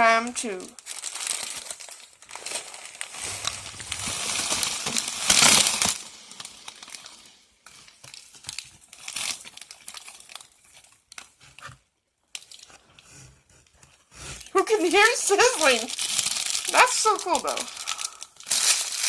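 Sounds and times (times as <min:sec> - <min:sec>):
plastic packet crinkling: 0:00.4 - 0:13.0, 0:14.4 - 0:19.0
dry noodles rustling: 0:00.8 - 0:11.7, 0:14.3 - 0:19.0
noodles sizzling in hot water: 0:14.6 - 0:19.0.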